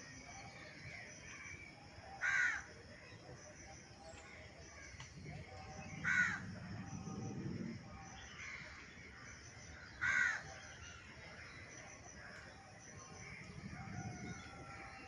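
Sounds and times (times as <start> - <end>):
crow cawing: 2.2 - 2.7, 6.0 - 6.4, 10.0 - 10.5.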